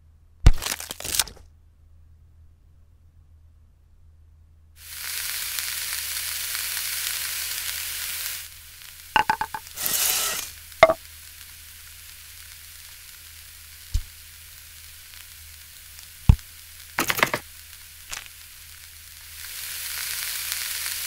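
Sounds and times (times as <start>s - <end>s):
food sizzling on a griddle: 4.8s - 21.0s.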